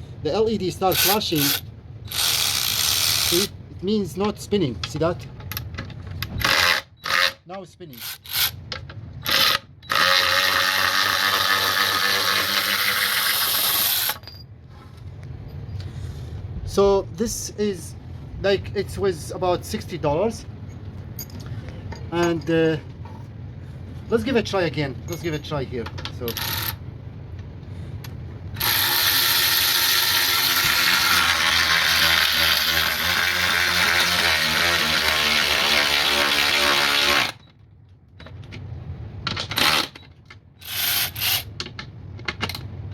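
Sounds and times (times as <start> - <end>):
electric ratchet wrench spinning: 0.9 - 3.5, 6.4 - 7.4, 8.0 - 8.6, 9.2 - 14.2, 28.6 - 37.4, 39.5 - 40.0, 40.6 - 41.5.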